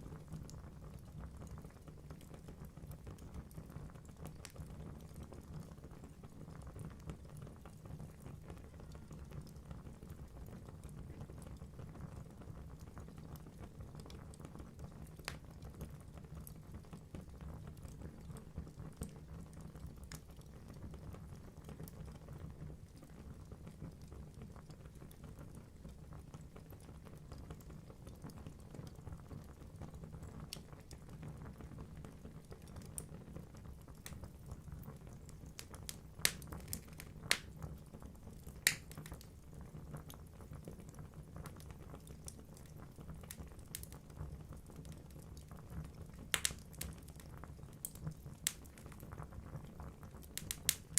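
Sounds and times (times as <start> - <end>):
logs crackling in fire: 0.0 - 50.9
low rumble of flames: 0.0 - 50.9
loud fire pops: 35.6 - 37.6, 38.6 - 39.2, 46.3 - 47.0, 50.4 - 50.9.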